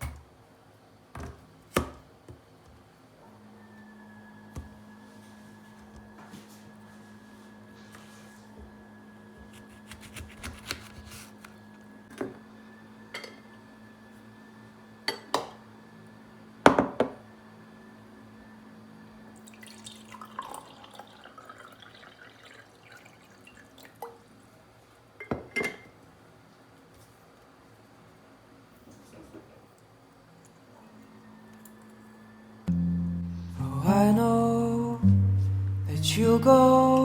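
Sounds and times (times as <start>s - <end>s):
low steady hum: 32.7s - 37.0s.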